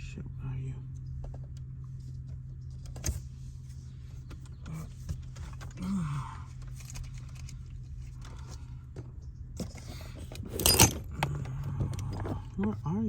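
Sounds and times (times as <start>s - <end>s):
steady low hum: 0.0s - 13.0s
metal tools being rummaged: 10.4s - 11.2s.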